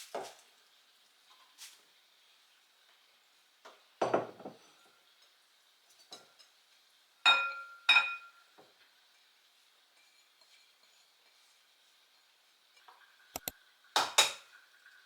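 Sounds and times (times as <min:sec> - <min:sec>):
dull knock of dishes: 0:04.0 - 0:04.6
dishes clinking: 0:04.0 - 0:05.0, 0:07.2 - 0:08.6.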